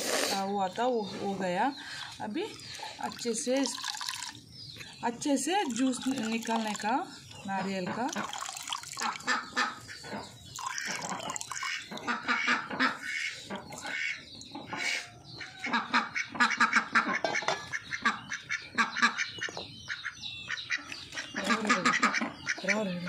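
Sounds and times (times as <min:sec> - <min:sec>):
birds making harsh calls: 0:05.7 - 0:23.0.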